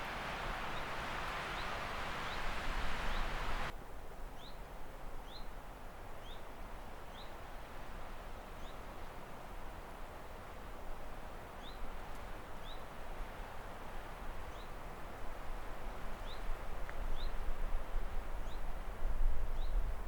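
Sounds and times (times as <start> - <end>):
rushing hiss: 0.0 - 3.7
small bird chirping: 0.0 - 3.7.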